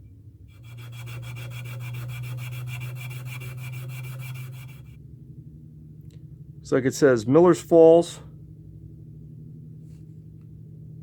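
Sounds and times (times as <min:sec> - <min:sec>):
low hum: 0:00.0 - 0:11.0
abrasive scrubbing on steel: 0:00.6 - 0:05.0.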